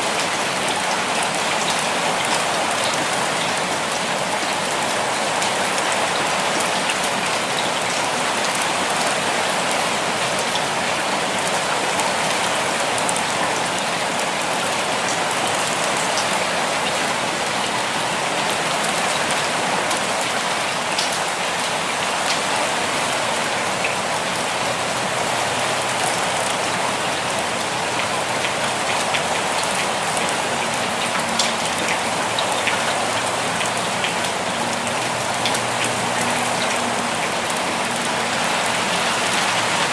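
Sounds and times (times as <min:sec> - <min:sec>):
steady rain hiss: 0:00.0 - 0:39.9
rain drop ticks: 0:25.9 - 0:38.2.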